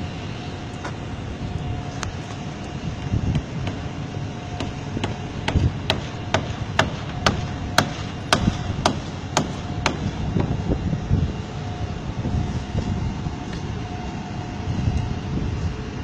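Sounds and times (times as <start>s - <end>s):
hammering blows: 3.1s - 4.0s, 4.6s - 10.6s.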